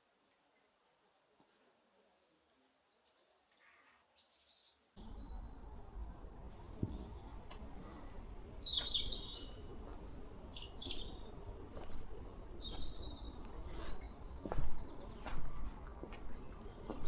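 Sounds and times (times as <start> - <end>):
songbirds chirping and singing: 7.8 - 17.0.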